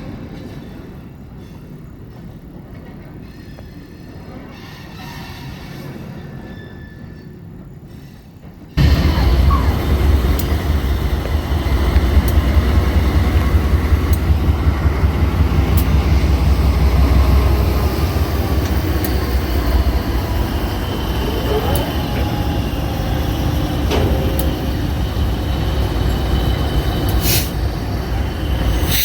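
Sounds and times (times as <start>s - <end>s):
freight train rumbling: 0.0s - 29.0s
sharp rail clicks: 8.8s - 29.0s.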